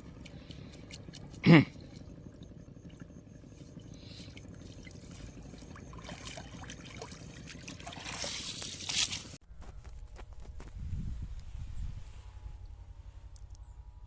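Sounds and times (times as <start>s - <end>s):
low steady hum: 0.0s - 14.0s
water trickling and dripping: 4.2s - 9.2s.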